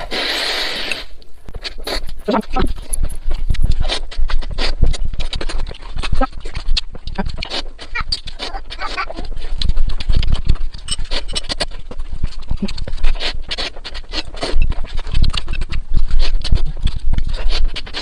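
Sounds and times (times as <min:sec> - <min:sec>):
slurping and chewing noodles: 0:00.0 - 0:18.0.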